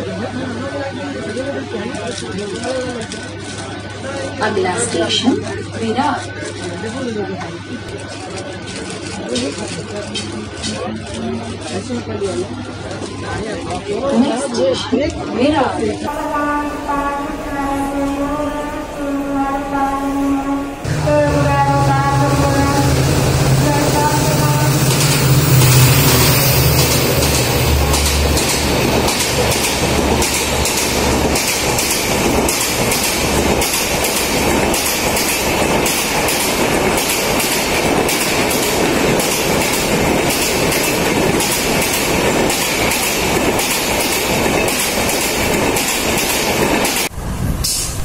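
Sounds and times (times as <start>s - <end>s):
diesel locomotive engine rumble: 16.0s - 48.0s
wheels clattering over rail joints: 24.8s - 47.1s.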